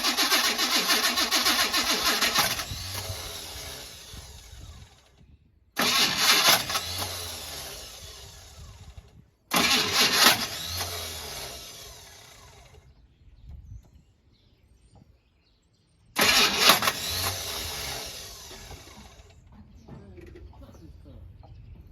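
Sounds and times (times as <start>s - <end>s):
starter cranking car engine: 0.0s - 5.2s, 5.8s - 12.9s, 16.2s - 19.5s.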